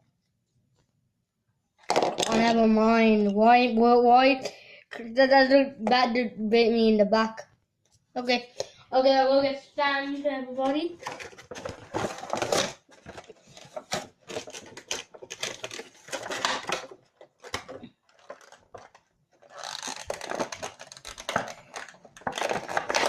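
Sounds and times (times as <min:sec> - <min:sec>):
toy packaging rustling and clicking: 0:01.8 - 0:03.4, 0:10.6 - 0:23.0.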